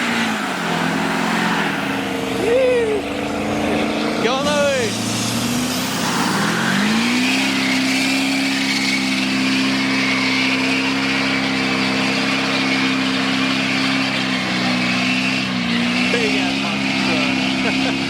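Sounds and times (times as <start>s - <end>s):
car engine revving: 0.0s - 18.0s
tyre squeal: 4.4s - 17.7s.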